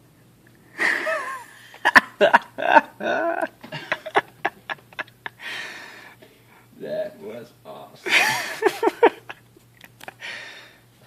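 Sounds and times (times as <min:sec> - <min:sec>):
people laughing: 0:00.8 - 0:05.4, 0:08.0 - 0:09.4.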